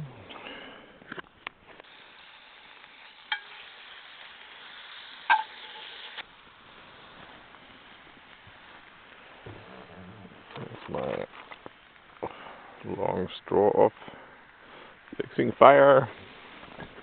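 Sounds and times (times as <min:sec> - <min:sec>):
chicken sizzling in a pan: 0:01.8 - 0:09.1.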